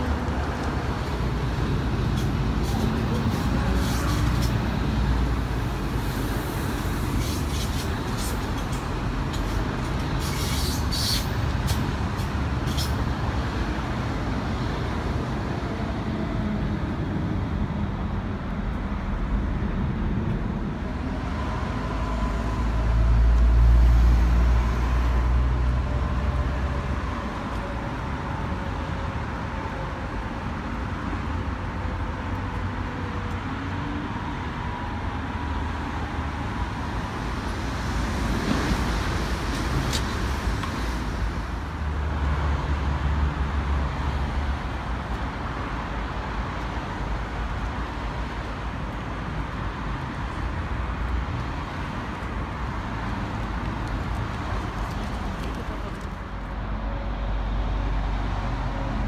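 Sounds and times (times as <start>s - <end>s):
train wheels rushing on track: 0.0s - 13.8s
rail yard and traffic rumble: 0.0s - 59.0s.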